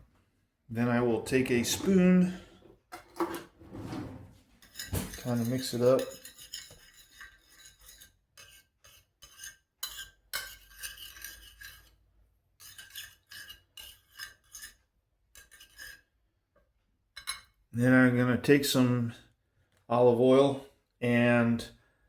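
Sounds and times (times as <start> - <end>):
spoon scraping a dish: 4.5 - 16.2.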